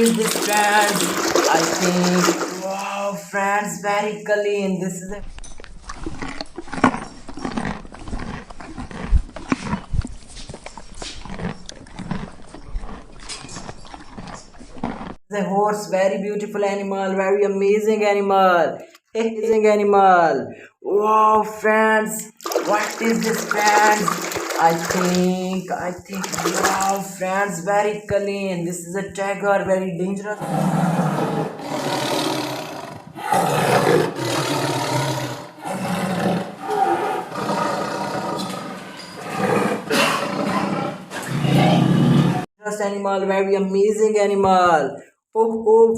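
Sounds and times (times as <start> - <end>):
tiger roaring: 30.4 - 42.4
animal sound: 30.4 - 42.5.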